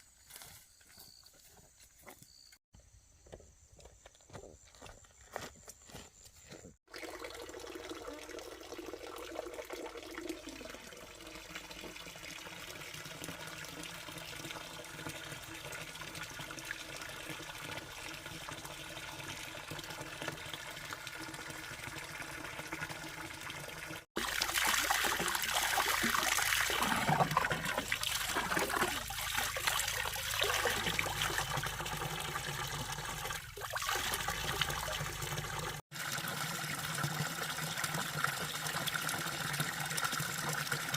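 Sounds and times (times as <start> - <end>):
water running and trickling: 6.9 - 40.9.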